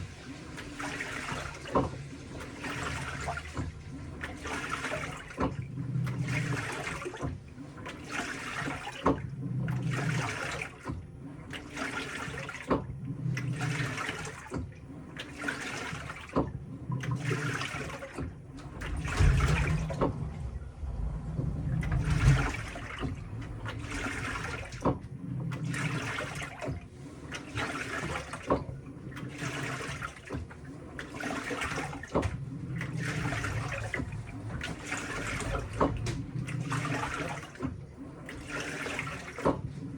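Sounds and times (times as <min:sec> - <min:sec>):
washing machine churning water: 0:00.0 - 0:39.9
low motor hum: 0:18.4 - 0:26.0, 0:32.2 - 0:38.0.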